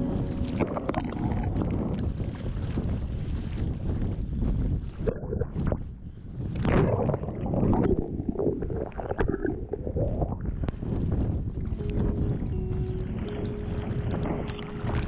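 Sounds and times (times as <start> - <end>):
sea water sloshing and splashing: 0.0 - 15.0
wind buffeting microphone: 0.0 - 15.0
faint steady tone: 11.7 - 15.0.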